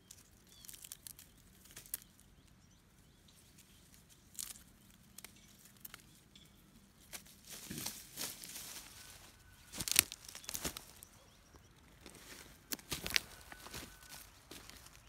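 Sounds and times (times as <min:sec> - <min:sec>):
rustling and scuffing: 0:07.1 - 0:11.2, 0:11.9 - 0:15.0.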